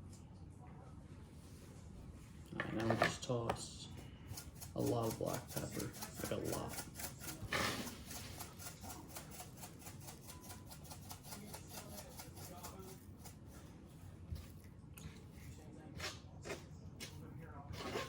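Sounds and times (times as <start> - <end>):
pepper grinder ticking: 4.3 - 7.4.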